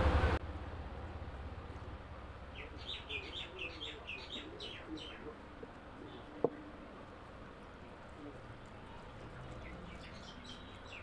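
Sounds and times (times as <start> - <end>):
loud low hum: 0.0 - 4.1
small birds chirping: 2.5 - 6.8, 7.6 - 11.0.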